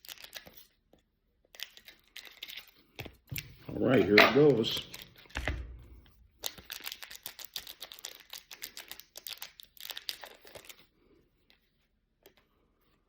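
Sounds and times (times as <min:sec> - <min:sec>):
wrapper crinkling and tearing: 0:00.0 - 0:00.7, 0:01.6 - 0:02.9, 0:06.4 - 0:10.9.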